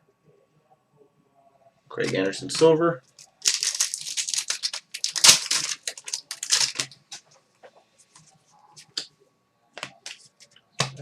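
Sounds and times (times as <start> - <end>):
card packaging crinkling: 2.0 - 7.2.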